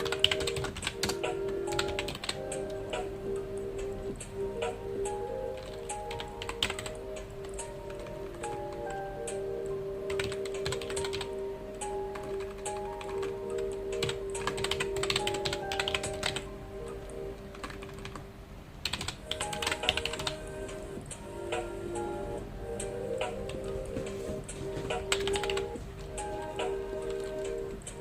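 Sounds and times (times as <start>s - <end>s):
typing on computer keyboard: 0.0s - 2.8s, 5.6s - 9.0s, 10.1s - 16.5s, 17.5s - 18.2s, 18.8s - 20.4s, 25.0s - 25.8s
soft background music: 0.0s - 28.0s.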